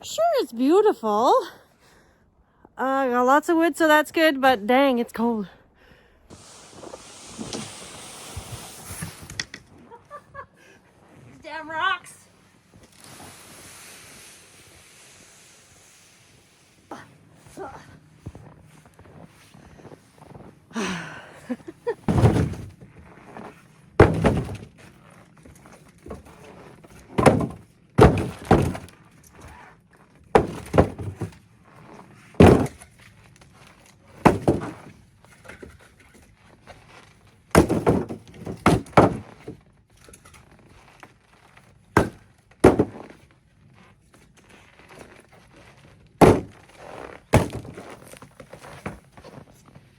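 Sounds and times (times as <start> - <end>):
firewood thunking onto a pile: 22.0 - 22.9, 24.0 - 29.0, 30.3 - 31.4, 32.4 - 33.0, 34.1 - 36.2, 37.5 - 40.4, 42.0 - 43.2, 46.2 - 49.4.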